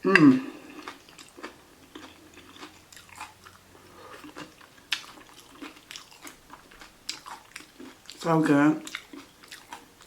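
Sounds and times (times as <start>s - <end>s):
crisp chewing crunches: 0.7s - 10.0s.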